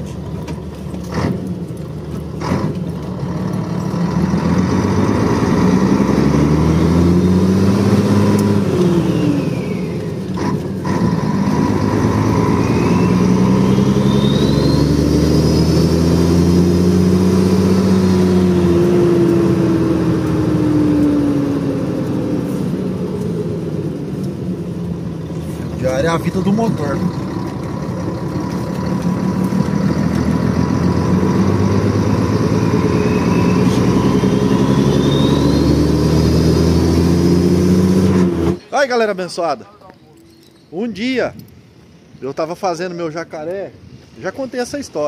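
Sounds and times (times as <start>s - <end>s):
diesel truck engine accelerating: 0.0s - 39.6s
turbo whistle: 12.4s - 15.6s, 32.5s - 36.0s.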